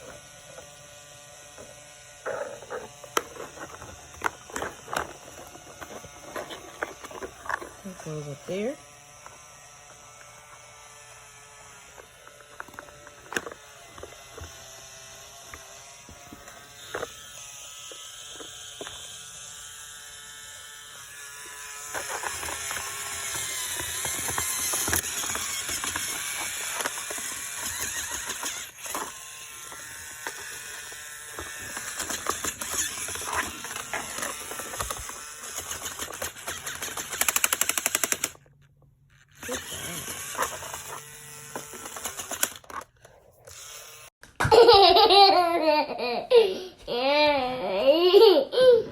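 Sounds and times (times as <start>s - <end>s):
toy drill whining: 0.0s - 48.9s
plastic parts clicking: 2.8s - 7.8s, 11.9s - 14.6s, 21.8s - 43.6s
plastic rattling and clattering: 2.9s - 7.9s, 21.9s - 29.1s.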